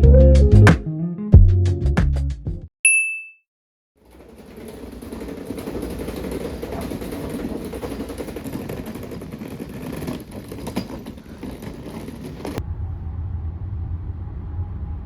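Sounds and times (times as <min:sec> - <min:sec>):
vehicle road rumble: 0:11.0 - 0:15.0.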